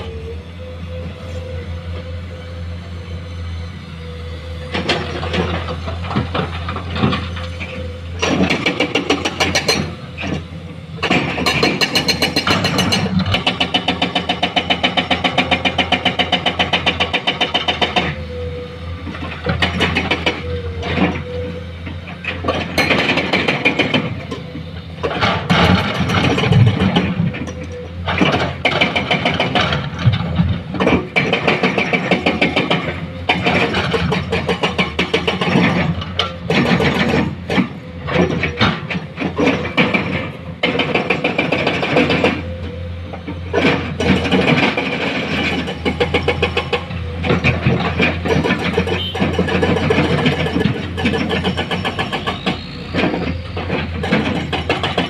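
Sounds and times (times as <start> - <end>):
diesel machinery engine running: 0.0 - 55.0
metal clanks and knocks: 4.7 - 18.1, 22.0 - 42.5.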